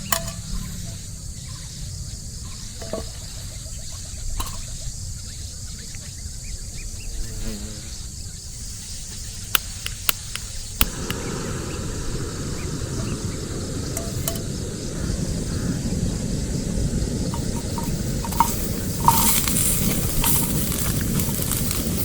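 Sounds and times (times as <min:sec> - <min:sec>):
low wind-like rumble: 0:10.6 - 0:22.0.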